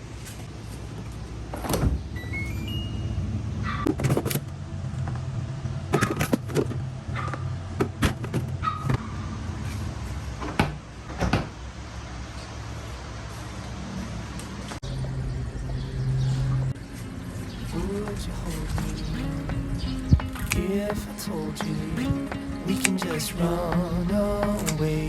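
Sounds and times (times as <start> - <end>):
electronic beeps rising in pitch: 2.2 - 3.3
low machine hum: 14.8 - 25.0.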